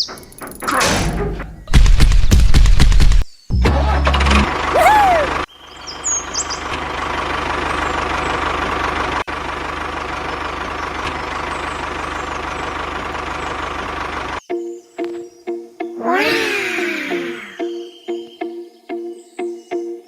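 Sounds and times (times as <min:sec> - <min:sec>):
small tractor engine chugging: 0:04.4 - 0:14.4.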